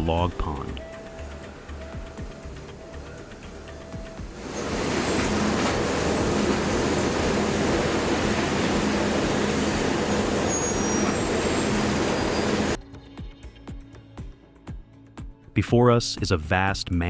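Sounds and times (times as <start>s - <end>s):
heavy engine running: 0.0s - 12.8s
low steady hum: 0.0s - 12.8s
broad rushing noise: 2.5s - 12.8s.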